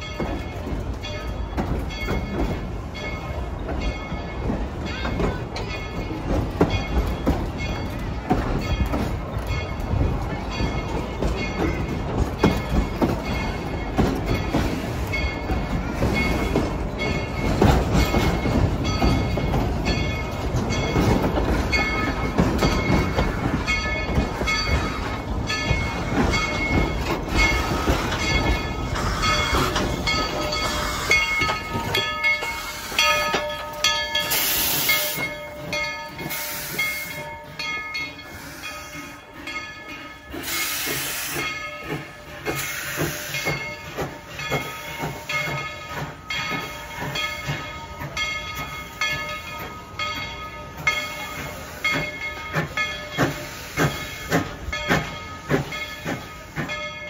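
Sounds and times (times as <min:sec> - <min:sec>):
wheels clattering on track: 0:00.0 - 0:38.2, 0:38.9 - 0:57.0
steam train rumble: 0:00.0 - 0:57.0
steam hisses: 0:27.3 - 0:33.4, 0:34.1 - 0:35.4, 0:36.1 - 0:37.6, 0:38.2 - 0:47.6, 0:50.7 - 0:57.0.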